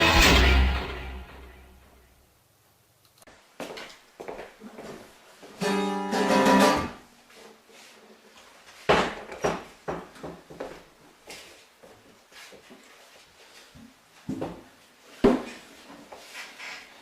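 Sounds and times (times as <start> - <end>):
acoustic guitar plucked and strummed: 0.0 - 1.8, 5.6 - 7.0.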